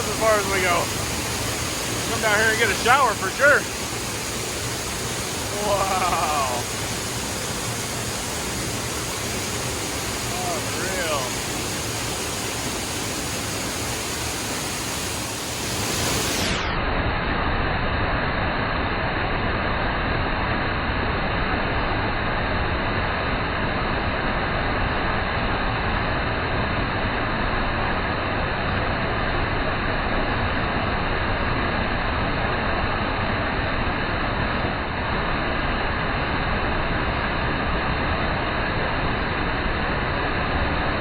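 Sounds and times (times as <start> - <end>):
waterfall roaring: 0.0 - 16.7.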